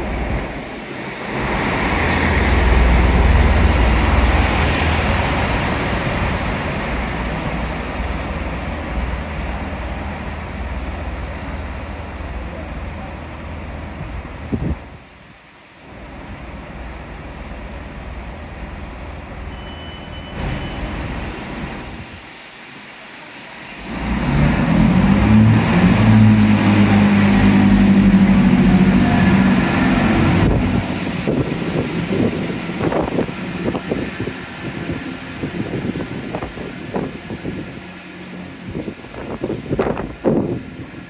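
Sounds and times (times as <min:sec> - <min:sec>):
wind and drizzle: 0:00.0 - 0:19.5, 0:20.3 - 0:41.0
wind gusts buffeting microphone: 0:14.0 - 0:15.1, 0:25.5 - 0:41.0
large diesel engine running: 0:23.8 - 0:41.0.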